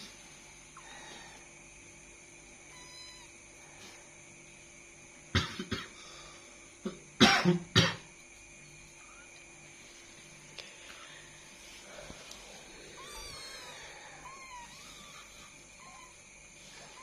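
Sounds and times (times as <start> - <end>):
person coughing: 5.4 - 6.0, 6.8 - 8.1.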